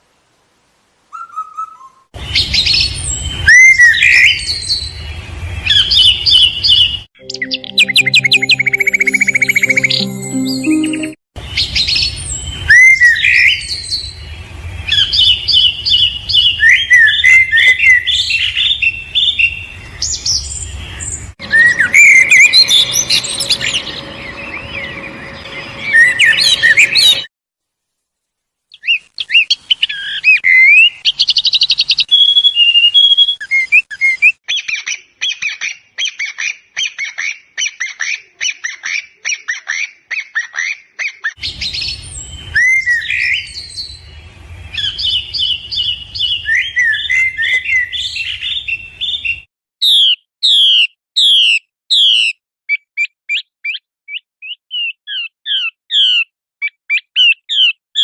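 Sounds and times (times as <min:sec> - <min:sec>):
songbirds singing and chirping: 0:01.2 - 0:27.3, 0:41.4 - 0:52.3.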